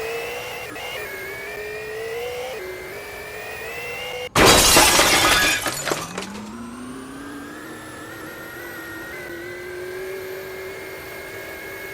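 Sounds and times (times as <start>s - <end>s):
loud crashing clatter: 4.4s - 6.6s
washing machine motor whine: 6.2s - 11.9s.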